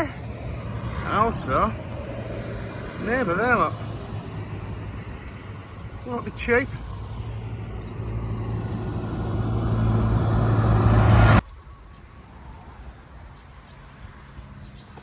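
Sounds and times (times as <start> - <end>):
motorbike engine hum: 0.0 - 11.4
wind rush: 0.0 - 11.4.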